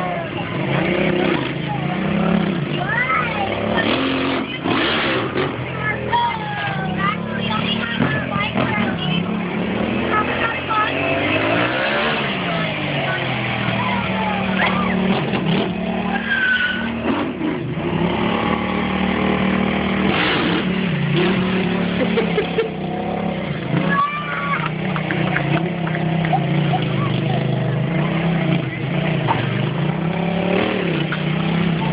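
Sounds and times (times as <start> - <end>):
motorcycle engines revving: 0.0 - 31.9
tire squeals: 1.0 - 17.6, 23.7 - 28.6.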